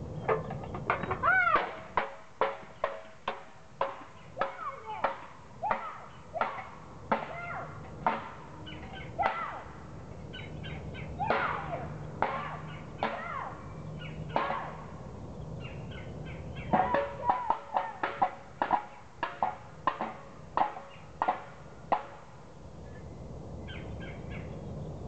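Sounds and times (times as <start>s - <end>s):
bird calling: 8.5s - 18.3s, 20.6s - 21.3s, 22.8s - 24.7s.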